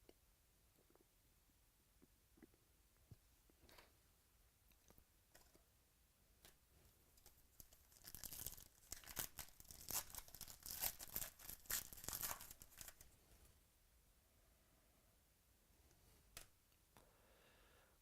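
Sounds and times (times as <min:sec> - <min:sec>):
wrapper tearing and crinkling: 0:07.6 - 0:13.1.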